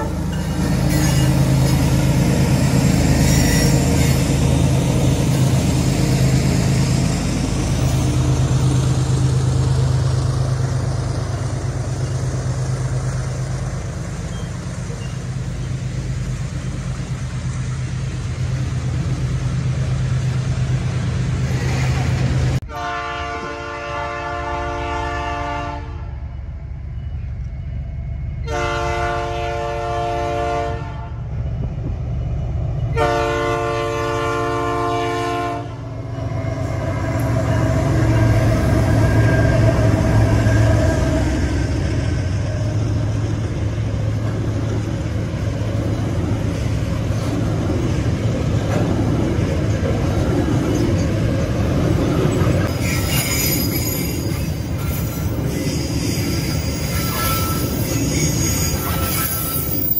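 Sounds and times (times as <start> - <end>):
diesel locomotive drone: 0.0 - 59.9
train wagons rumbling: 0.0 - 59.9
locomotive air horn blasts: 22.6 - 26.1, 28.4 - 31.2, 33.0 - 35.8.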